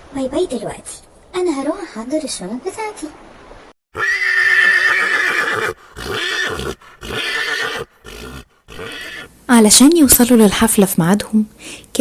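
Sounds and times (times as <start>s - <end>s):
horse whinnying: 4.0s - 9.3s.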